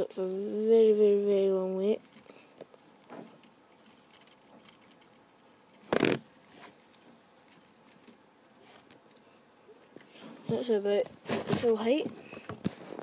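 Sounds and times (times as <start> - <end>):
faint plastic gear clicks: 2.0 - 5.9.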